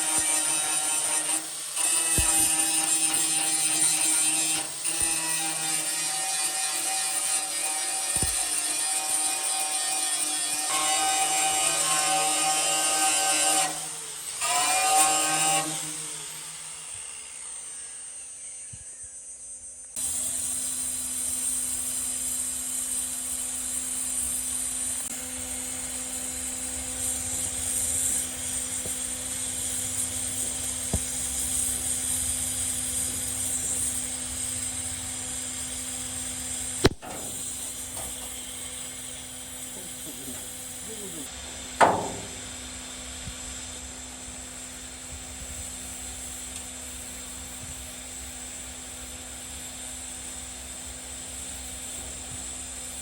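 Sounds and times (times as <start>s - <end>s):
power tool motor whine: 0.0s - 53.0s
steady running hum with hiss: 17.8s - 53.0s
sharp click: 36.8s - 38.6s.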